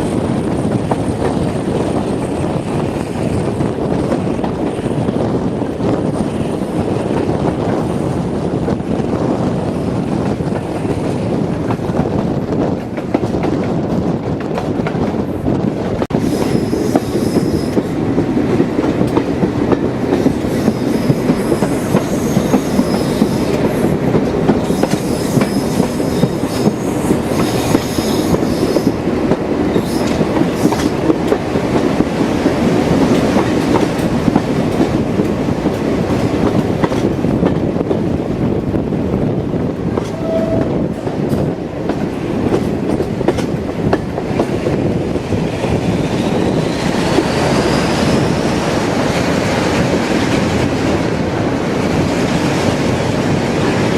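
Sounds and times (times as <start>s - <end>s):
train wheels rumbling: 0.0s - 53.9s
high-pitched wheel squeal: 24.7s - 29.0s, 40.1s - 40.8s.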